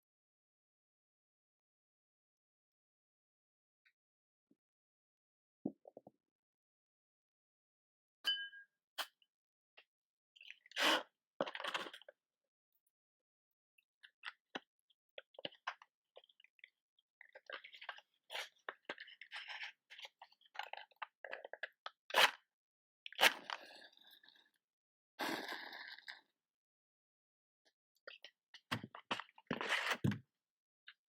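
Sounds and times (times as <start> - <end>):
small crackles and scratches: 14.3 - 22.3.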